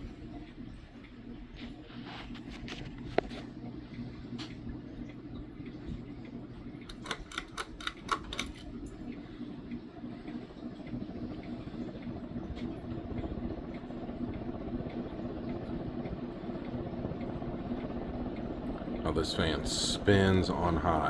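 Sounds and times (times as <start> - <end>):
ceiling fan motor humming: 0.0 - 21.0
sharp clicks: 6.8 - 9.0.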